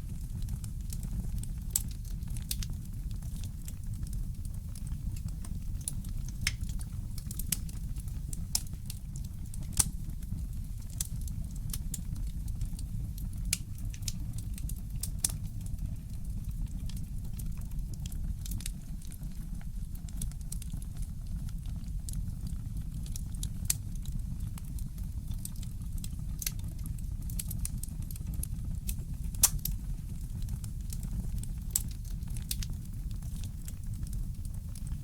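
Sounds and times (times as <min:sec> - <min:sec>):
fireplace crackling: 0:00.0 - 0:14.1, 0:25.4 - 0:26.6, 0:27.3 - 0:35.0.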